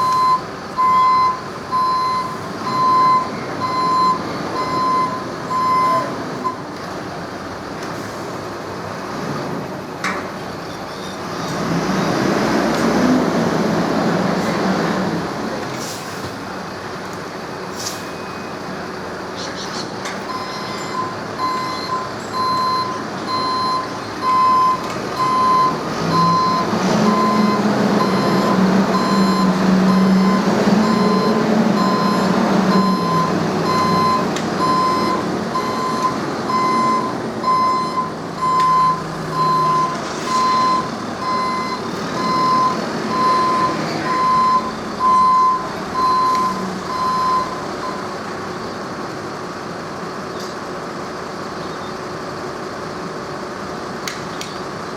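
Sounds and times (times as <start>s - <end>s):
reversing alarm beeping: 0.0s - 6.6s, 20.3s - 48.1s
heavy vehicle engine running: 0.0s - 54.9s.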